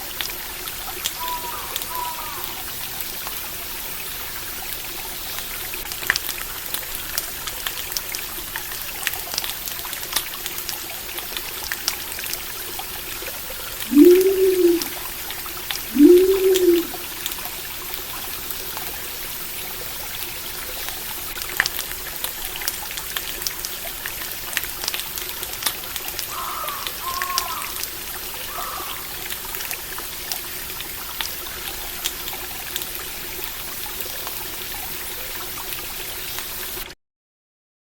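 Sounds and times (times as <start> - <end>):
stream trickling: 0.0 - 36.9
short arched calls: 13.8 - 15.0, 15.9 - 17.2.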